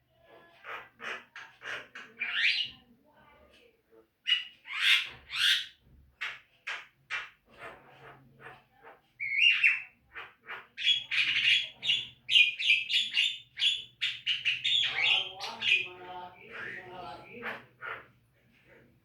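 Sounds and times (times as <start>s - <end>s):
bird singing harsh chattering notes: 10.8s - 17.0s.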